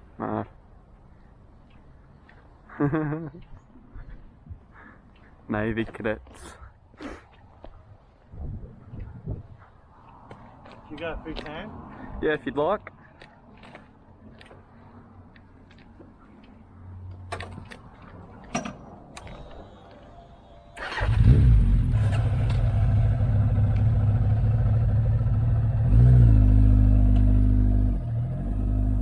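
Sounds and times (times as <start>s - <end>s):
motorcycle engine starting and idling: 18.5s - 29.0s.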